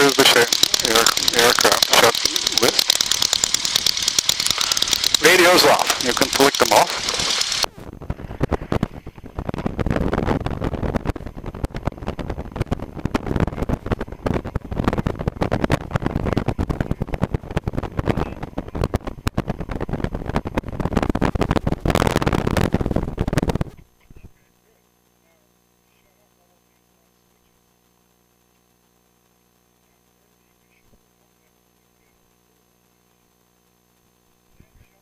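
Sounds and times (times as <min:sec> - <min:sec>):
airplane piston engine idling: 0:00.0 - 0:09.4.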